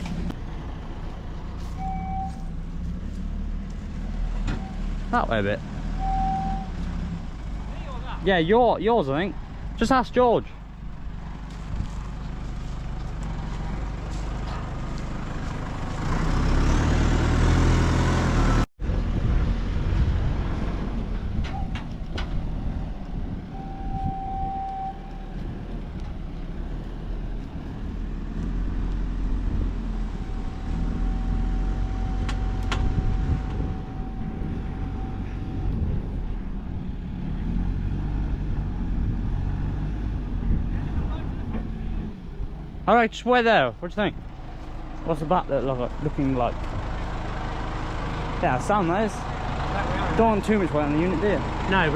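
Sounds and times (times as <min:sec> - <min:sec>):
diesel machinery running: 0:00.0 - 0:51.9
steady high tone: 0:23.6 - 0:25.2, 0:30.3 - 0:35.9.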